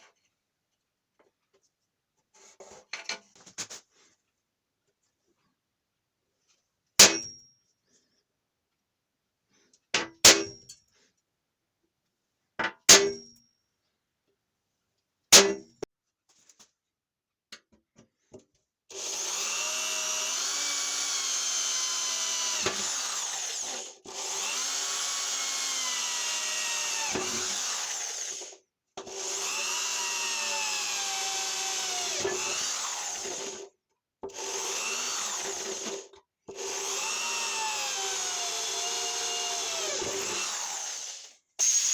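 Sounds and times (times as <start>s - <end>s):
electric drill running: 18.9s - 33.7s, 34.3s - 41.9s.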